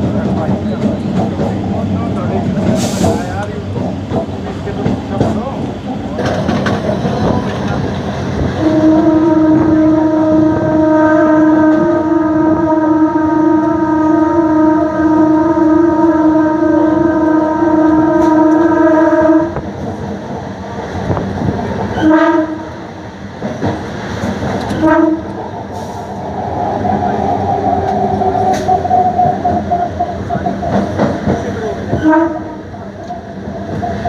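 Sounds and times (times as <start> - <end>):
train running on rails: 0.0 - 34.0
train horn: 8.5 - 19.6, 22.0 - 22.8, 24.7 - 25.4, 31.9 - 33.2.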